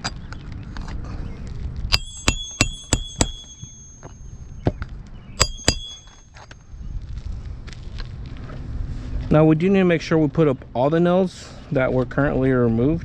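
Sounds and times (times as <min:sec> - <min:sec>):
hammer striking roofing nails: 0:05.4 - 0:06.2.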